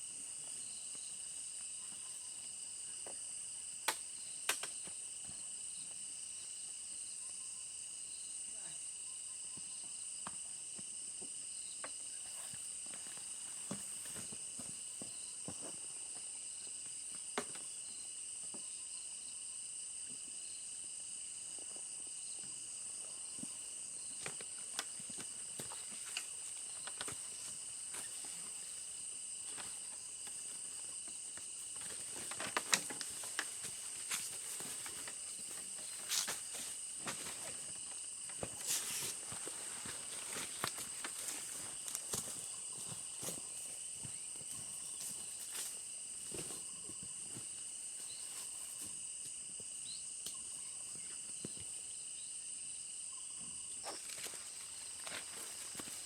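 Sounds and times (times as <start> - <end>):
insect chorus shrilling: 23.2 - 49.0, 49.7 - 56.0.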